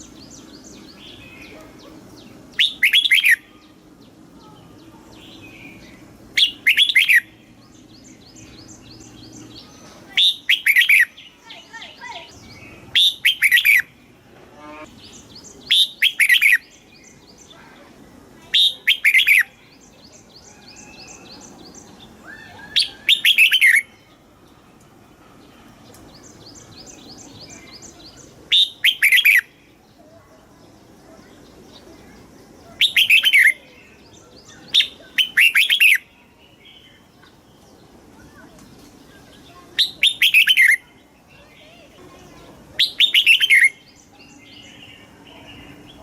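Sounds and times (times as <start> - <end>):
quick repeated bird twittering: 0.0 - 3.8, 4.4 - 14.0, 15.0 - 17.8, 18.5 - 21.8, 22.8 - 24.0, 26.1 - 29.6, 30.8 - 36.2, 39.2 - 46.0
bulbul singing warbled phrases: 0.0 - 24.7, 25.4 - 46.0.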